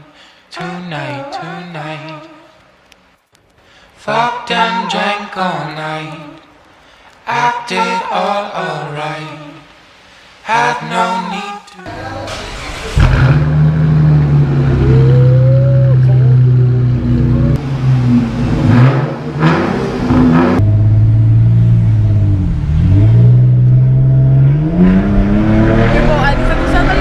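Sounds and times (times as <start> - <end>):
car exhaust note: 11.9 - 27.0.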